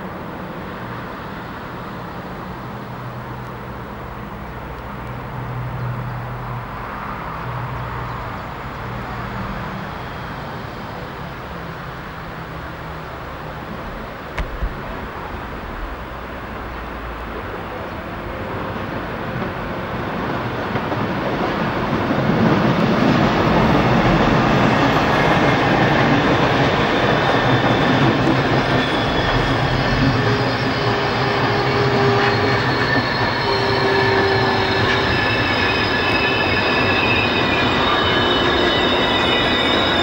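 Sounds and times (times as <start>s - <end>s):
train wheels rumbling on track: 0.0s - 40.0s
high-pitched wheel squeal: 23.6s - 40.0s.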